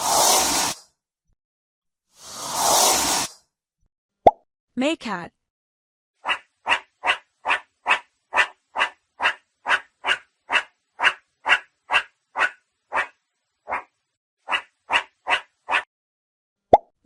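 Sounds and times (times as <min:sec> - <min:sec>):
meerkat barking: 0:06.2 - 0:13.9, 0:14.5 - 0:15.9.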